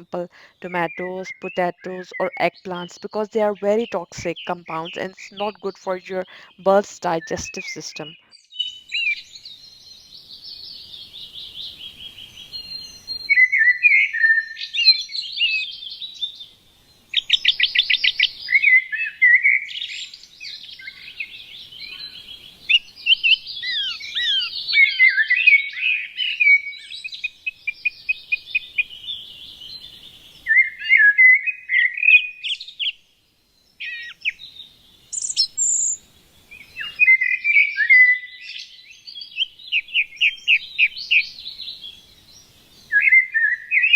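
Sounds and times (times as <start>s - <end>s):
songbirds chirping and singing: 0.0s - 8.2s, 20.6s - 26.3s.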